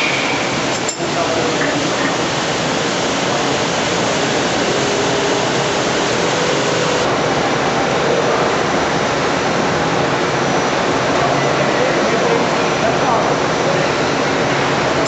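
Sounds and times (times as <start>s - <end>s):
grinder rushing noise: 0.0s - 7.1s.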